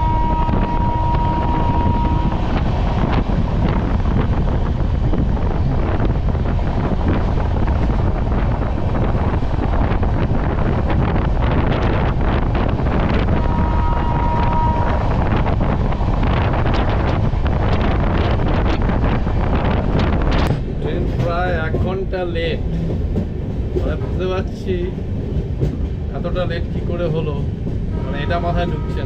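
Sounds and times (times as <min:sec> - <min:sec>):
high steady tone: 0:00.0 - 0:02.4
train rushing with clicks: 0:00.0 - 0:29.0
wind buffeting microphone: 0:00.0 - 0:29.0.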